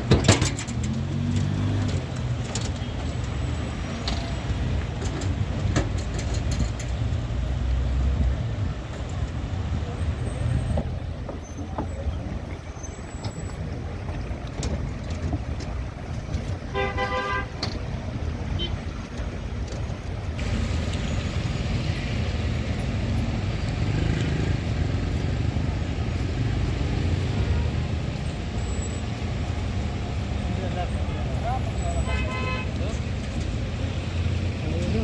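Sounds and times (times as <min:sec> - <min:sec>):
road traffic rumbling: 0:00.0 - 0:35.0
car horn: 0:16.7 - 0:17.7, 0:18.5 - 0:18.8, 0:32.0 - 0:32.8.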